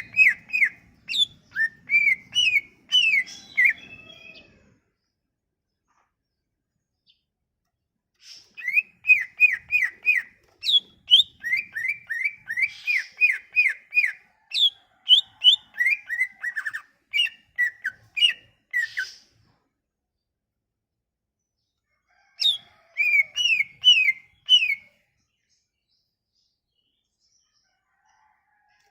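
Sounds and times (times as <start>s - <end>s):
songbird whistling song: 0.0s - 4.7s, 8.2s - 19.5s, 22.4s - 25.0s.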